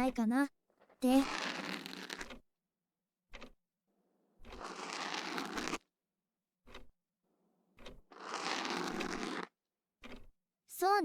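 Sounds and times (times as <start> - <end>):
ear pick scraping in ear: 1.1 - 2.4, 4.5 - 5.8, 8.1 - 9.5.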